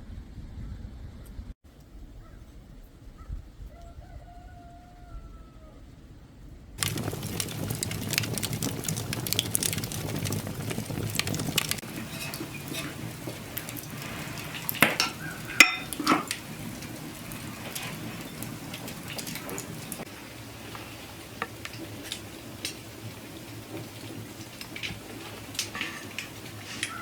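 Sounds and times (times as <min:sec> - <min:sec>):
food sizzling: 0:06.8 - 0:27.0
pots and utensils clinking: 0:06.8 - 0:27.0.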